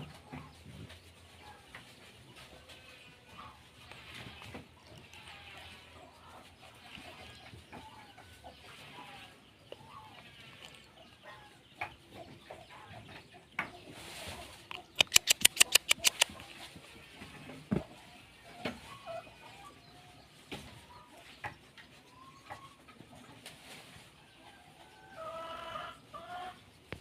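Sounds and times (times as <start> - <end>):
chickens clucking: 0.0 - 27.0
sharp clicks: 14.7 - 16.3
rapid loud sharp strokes: 15.0 - 16.3.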